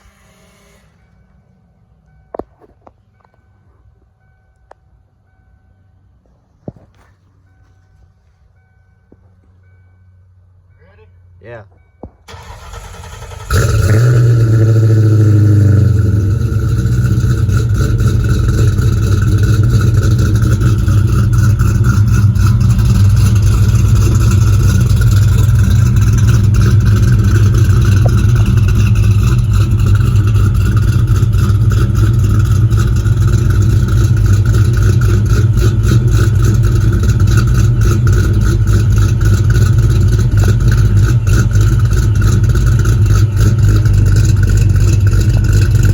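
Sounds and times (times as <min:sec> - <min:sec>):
car engine starting and idling: 0:00.0 - 0:11.4, 0:12.0 - 0:45.9.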